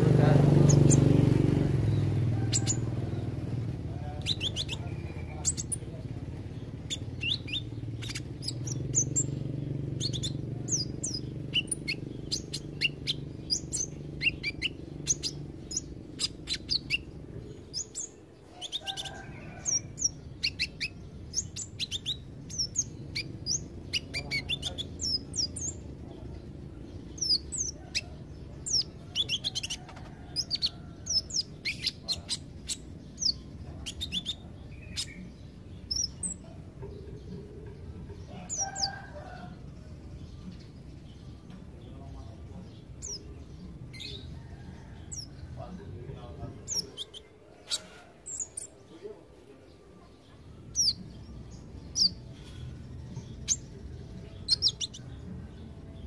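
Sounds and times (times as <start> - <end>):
bird twittering high chirps: 0.0 - 49.2, 50.1 - 56.0.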